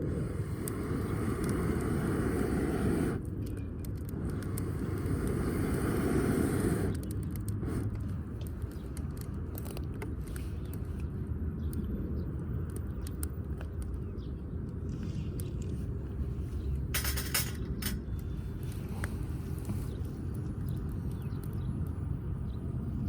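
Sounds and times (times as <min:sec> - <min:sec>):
wood fire crackling and popping: 0:00.0 - 0:11.0, 0:11.6 - 0:16.0.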